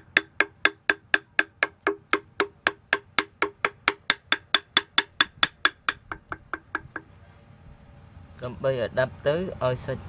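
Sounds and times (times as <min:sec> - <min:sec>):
rapid sharp tapping: 0:00.0 - 0:07.1.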